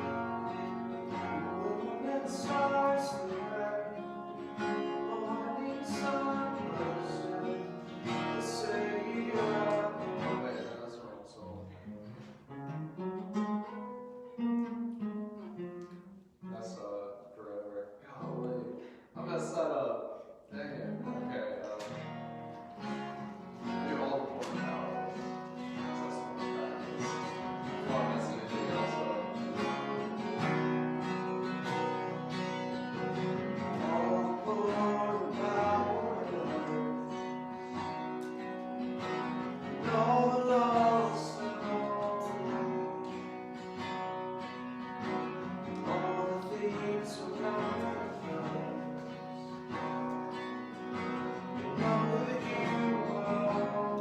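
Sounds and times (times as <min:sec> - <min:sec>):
person singing: 0:00.0 - 0:10.7, 0:23.7 - 0:43.6, 0:45.7 - 0:50.2, 0:51.3 - 0:54.0
acoustic guitar strumming: 0:00.0 - 0:54.0.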